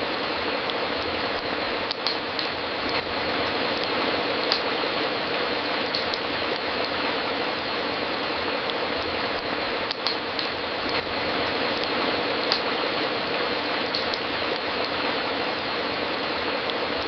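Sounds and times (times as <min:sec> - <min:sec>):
fireplace crackling: 0:00.0 - 0:17.0.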